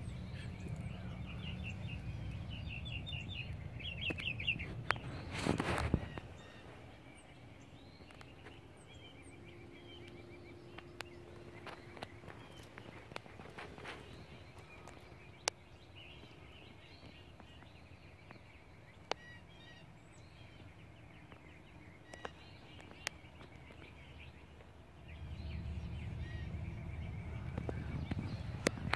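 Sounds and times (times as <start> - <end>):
low rumble: 0.0 - 7.8, 23.9 - 28.9
birds chirping: 0.0 - 28.9.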